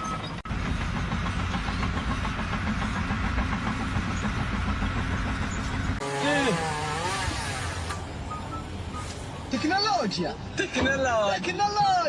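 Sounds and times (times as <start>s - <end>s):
heavy machine running: 0.2s - 8.1s.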